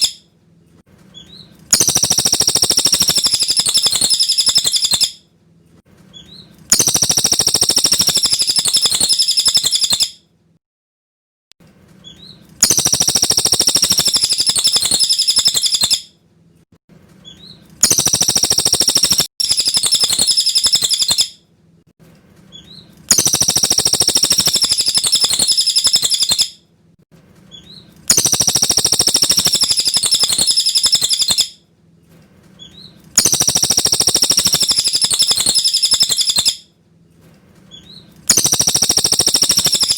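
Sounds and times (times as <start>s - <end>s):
bird singing high-pitched phrases: 1.2s - 5.2s, 6.2s - 10.1s, 12.1s - 16.1s, 17.3s - 21.3s, 22.6s - 26.5s, 27.5s - 31.5s, 32.6s - 36.6s, 37.7s - 39.9s.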